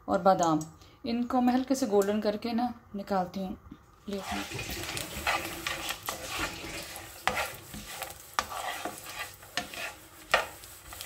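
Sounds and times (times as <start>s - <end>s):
food sizzling in frying pan: 4.0s - 11.0s
spatula scraping and tapping pan: 4.1s - 11.0s.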